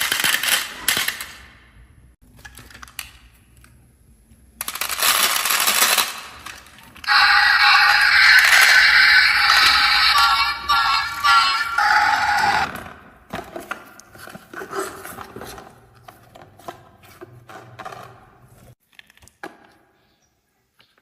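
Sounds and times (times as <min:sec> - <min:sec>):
music: 0:07.1 - 0:12.6.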